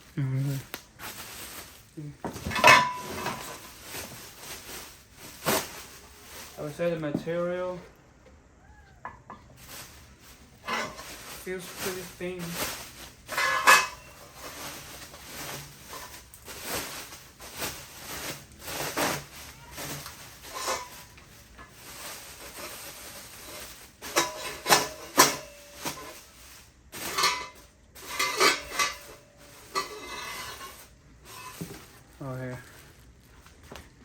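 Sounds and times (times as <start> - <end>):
metal clanks ringing: 2.5 - 3.6, 13.3 - 14.3.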